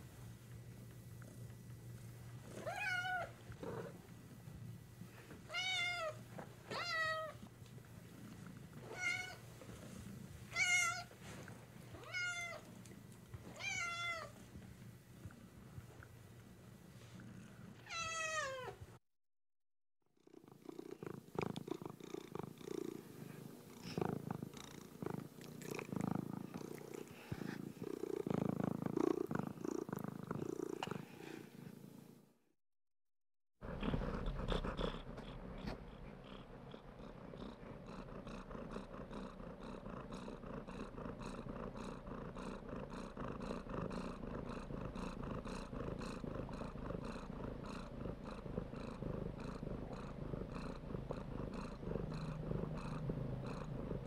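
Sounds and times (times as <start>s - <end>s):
cat purring: 0.0s - 17.9s, 20.2s - 32.0s, 33.6s - 54.0s
cat meowing: 2.6s - 3.3s, 5.5s - 7.4s, 8.9s - 9.4s, 10.5s - 11.1s, 12.0s - 12.6s, 13.6s - 14.3s, 17.9s - 18.8s.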